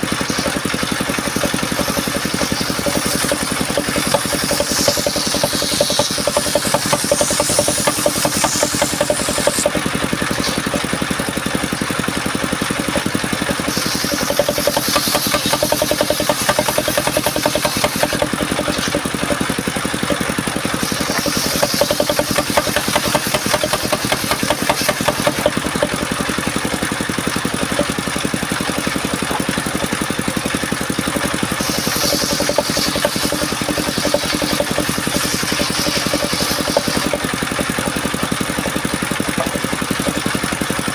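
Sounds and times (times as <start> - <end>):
saw cutting wood: 0.0 - 40.9
sawmill engine running: 0.0 - 40.9.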